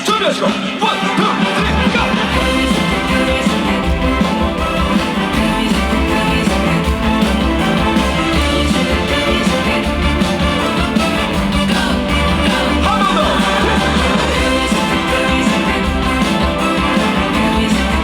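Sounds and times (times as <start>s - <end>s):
live band playing upbeat music: 0.0s - 18.0s.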